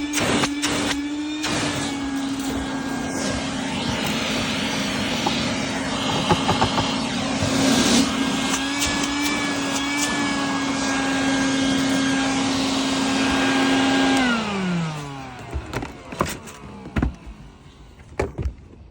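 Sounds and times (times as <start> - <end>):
vacuum cleaner motor whining: 0.0 - 18.9
knocks and clicks: 5.0 - 7.0.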